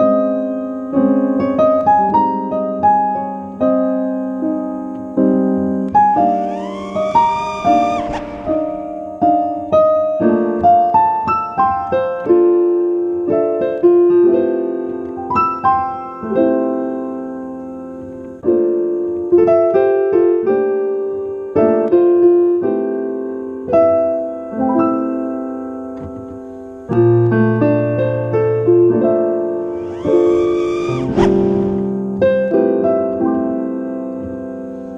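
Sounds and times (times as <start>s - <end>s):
piano music: 5.4s - 11.3s.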